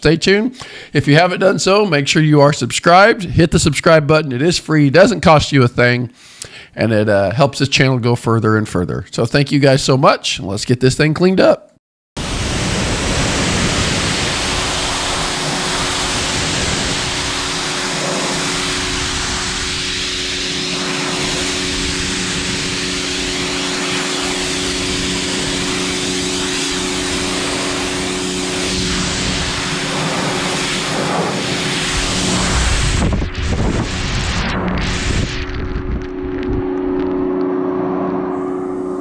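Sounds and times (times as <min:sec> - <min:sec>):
high-pressure water jet hissing: 0:12.2 - 0:35.6
pressure washer motor hum: 0:12.2 - 0:39.0.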